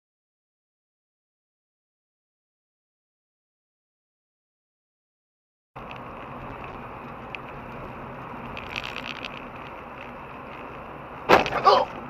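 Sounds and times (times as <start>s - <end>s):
car engine and road noise: 5.8s - 12.0s.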